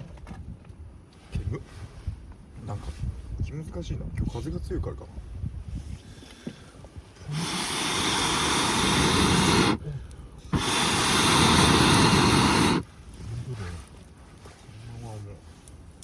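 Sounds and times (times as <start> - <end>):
mini torch hissing jet: 7.2 - 12.9.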